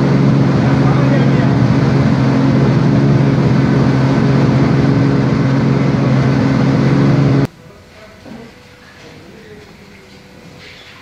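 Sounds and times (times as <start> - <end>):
car engine at steady revs: 0.0 - 7.5.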